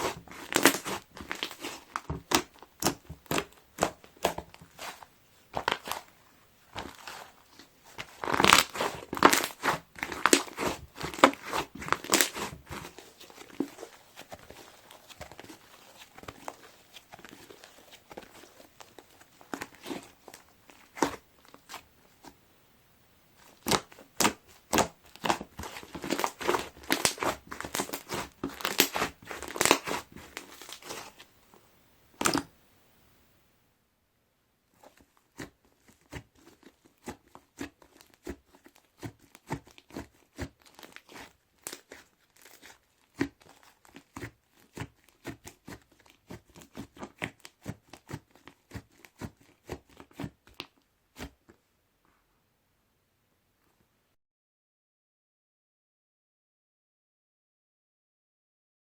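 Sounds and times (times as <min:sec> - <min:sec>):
bead slime crackling when squished: 0:23.6 - 0:31.2.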